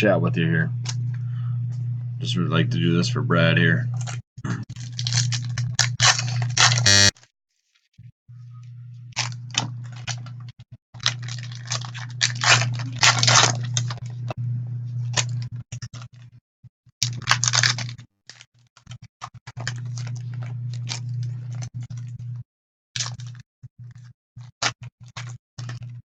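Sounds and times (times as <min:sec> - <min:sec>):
low electrical hum: 0:00.0 - 0:07.1, 0:08.3 - 0:16.3, 0:19.5 - 0:22.4
packaging crinkling and tearing: 0:04.0 - 0:07.3, 0:09.2 - 0:10.4, 0:11.0 - 0:14.1, 0:15.1 - 0:16.2, 0:17.0 - 0:22.1, 0:23.0 - 0:23.4, 0:24.6 - 0:25.9.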